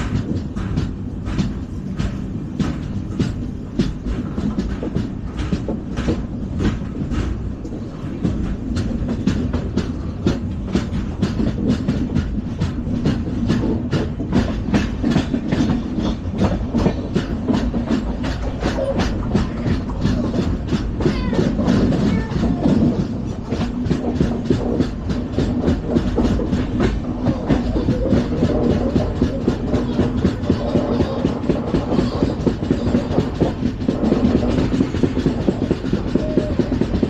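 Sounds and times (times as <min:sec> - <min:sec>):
train coach rumbling: 0:00.0 - 0:37.0
wheels clicking over rail joints: 0:00.0 - 0:37.0.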